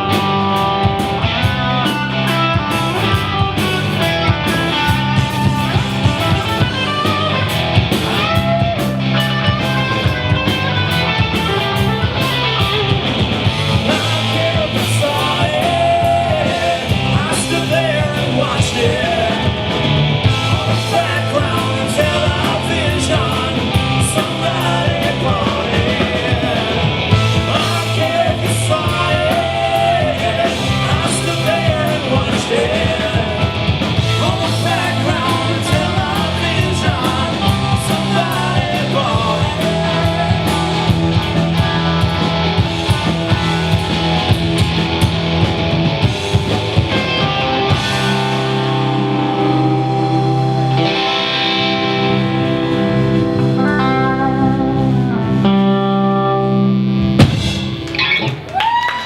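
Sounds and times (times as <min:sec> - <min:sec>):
live rock band: 0:00.0 - 0:59.0
singer shouting vocals: 0:13.8 - 0:42.3.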